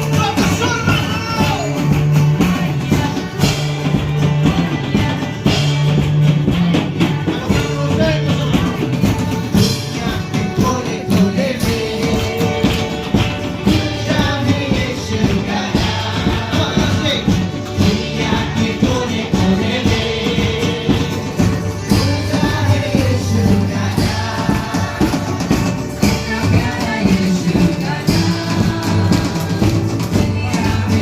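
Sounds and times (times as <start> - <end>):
percussion beat: 0.0 - 31.0
person singing worship song: 6.8 - 31.0.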